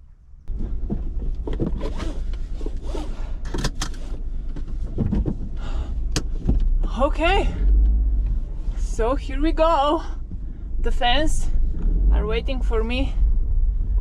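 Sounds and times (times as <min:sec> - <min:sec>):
low rumble: 0:00.0 - 0:14.0
clicks and rustling: 0:00.5 - 0:06.7.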